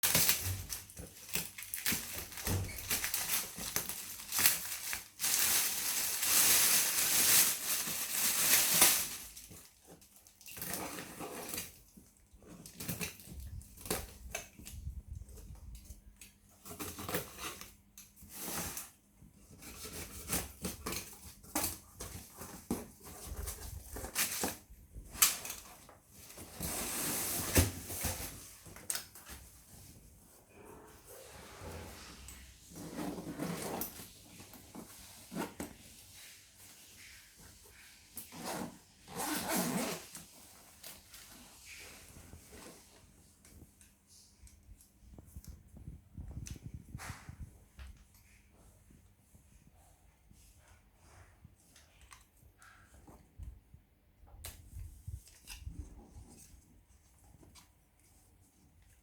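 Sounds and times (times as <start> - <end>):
packaging rustling and tearing: 0.0 - 15.4.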